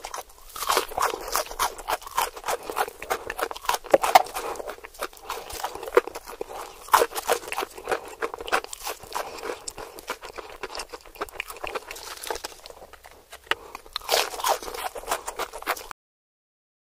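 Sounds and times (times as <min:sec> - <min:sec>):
crunching fried chicken: 0:00.0 - 0:15.9.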